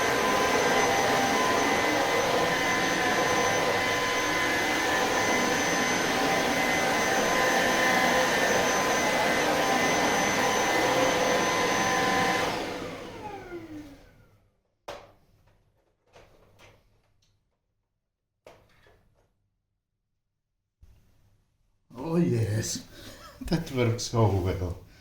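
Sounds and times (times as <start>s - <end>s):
vacuum cleaner running: 0.0s - 14.5s.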